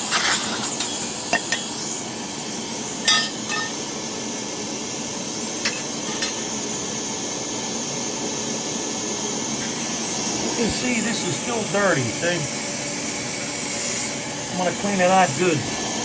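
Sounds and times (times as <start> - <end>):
steady hiss: 9.6 - 12.9.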